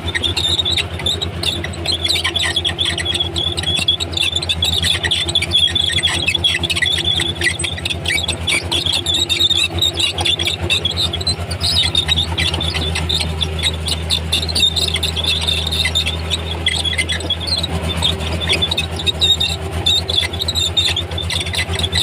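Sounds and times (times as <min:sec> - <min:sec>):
bulldozer diesel engine droning: 0:00.0 - 0:22.0
steel tracks squealing: 0:00.0 - 0:22.0.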